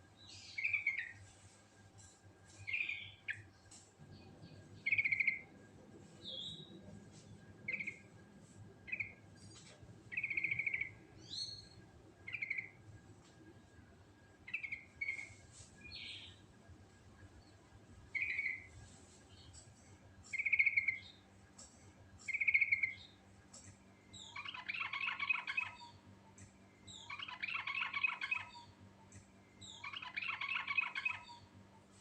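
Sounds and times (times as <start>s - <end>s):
bulbul singing: 2.6s - 5.5s, 8.9s - 12.8s, 18.1s - 18.8s, 20.2s - 21.2s, 22.2s - 31.5s.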